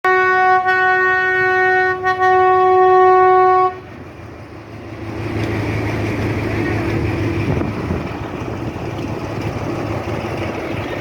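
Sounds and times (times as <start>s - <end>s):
train horn blast: 0.0s - 3.9s
train rumble: 0.1s - 11.0s.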